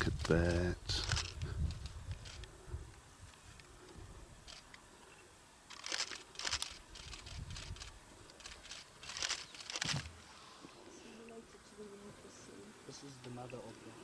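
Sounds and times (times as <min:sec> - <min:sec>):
faint clicks: 0:05.7 - 0:10.1
crunching and rustling: 0:05.7 - 0:10.2.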